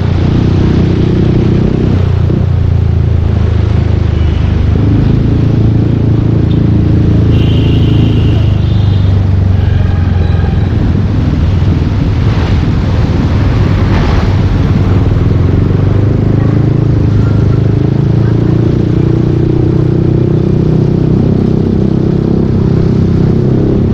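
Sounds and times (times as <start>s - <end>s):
scooter engine droning: 0.0s - 12.0s.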